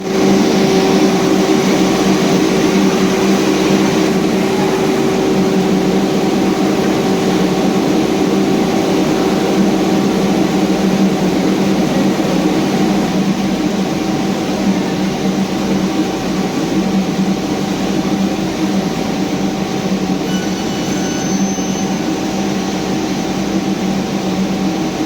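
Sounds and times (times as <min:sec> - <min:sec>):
panel saw humming and whining: 0:19.8 - 0:24.6.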